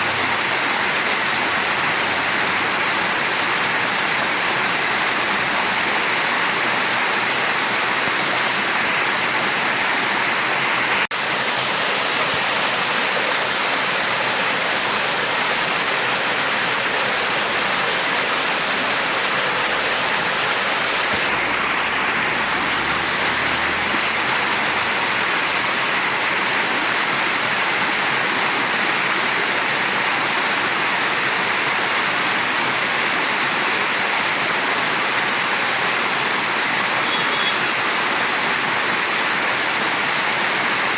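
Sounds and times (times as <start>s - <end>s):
mountain stream rushing: 0.0s - 40.9s.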